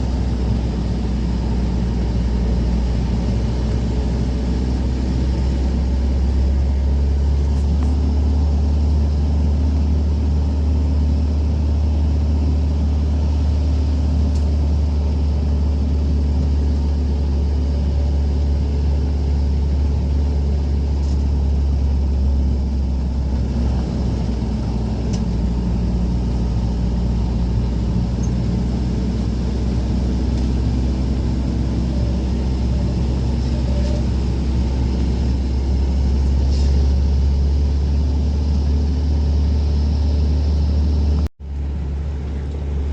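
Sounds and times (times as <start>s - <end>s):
vehicle engine drone from inside: 0.0s - 42.9s.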